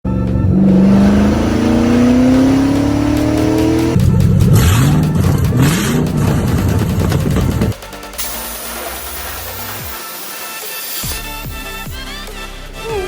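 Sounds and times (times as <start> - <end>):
car engine revving: 0.1 - 7.8
hissy bursts: 8.1 - 11.1.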